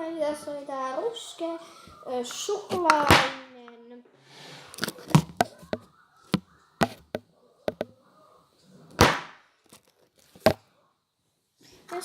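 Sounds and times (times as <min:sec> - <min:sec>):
scrape on tabletop: 0:04.2 - 0:05.0
sharp clicks and taps on tabletop: 0:05.1 - 0:07.9.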